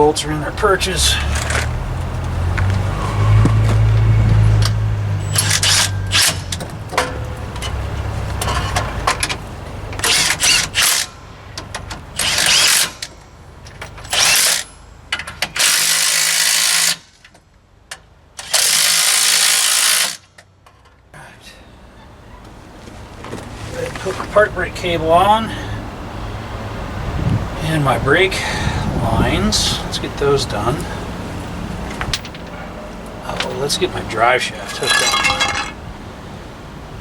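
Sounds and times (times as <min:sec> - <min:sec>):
power wrench bursts: 0:05.3 - 0:06.6, 0:10.0 - 0:11.1, 0:12.2 - 0:13.1, 0:14.1 - 0:14.7, 0:15.4 - 0:17.2, 0:18.4 - 0:20.3.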